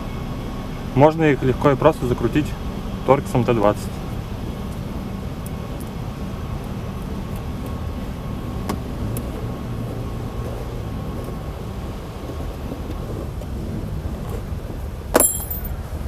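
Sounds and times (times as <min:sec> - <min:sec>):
low rumble of vehicle noise: 0:00.0 - 0:16.0.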